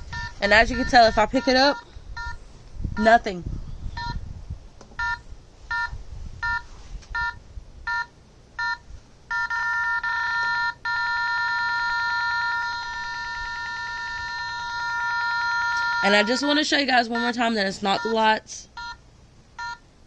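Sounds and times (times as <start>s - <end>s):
continuous electronic tone: 0.0s - 2.4s, 3.9s - 4.2s, 5.0s - 19.9s
short electronic beeps: 0.1s - 2.4s, 4.0s - 4.2s, 5.0s - 16.5s.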